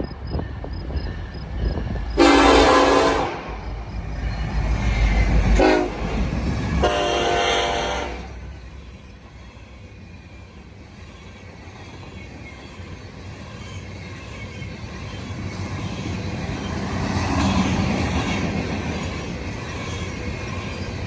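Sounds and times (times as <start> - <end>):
low rumble of train: 0.0 - 21.0
locomotive air horn blasts: 2.2 - 3.6, 5.6 - 6.2, 6.8 - 8.4.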